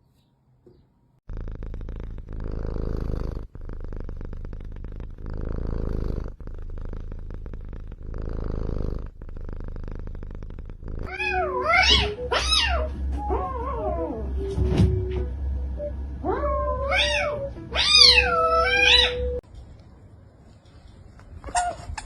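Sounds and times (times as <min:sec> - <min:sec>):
cat purring: 0:01.2 - 0:19.4
cat meowing: 0:11.1 - 0:14.3, 0:16.2 - 0:19.4.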